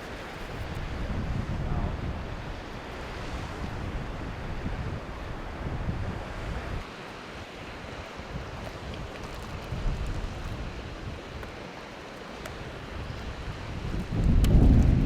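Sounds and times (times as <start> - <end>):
wind buffeting microphone: 0.0 - 11.8, 12.4 - 15.0
raindrop ticks: 14.2 - 14.9.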